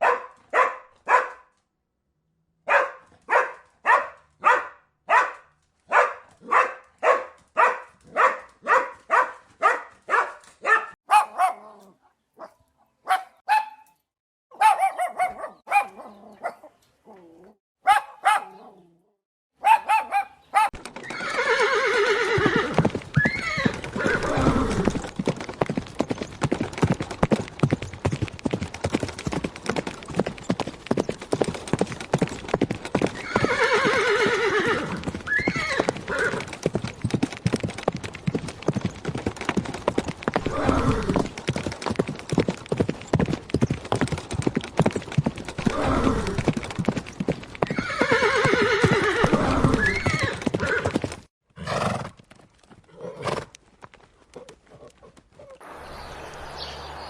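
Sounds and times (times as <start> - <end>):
horse hooves clip-clopping: 5.5 - 11.5, 20.6 - 56.8
horse whinnying: 20.6 - 25.1, 32.9 - 36.6, 40.3 - 41.4, 45.6 - 46.5, 47.6 - 52.1, 52.9 - 53.5.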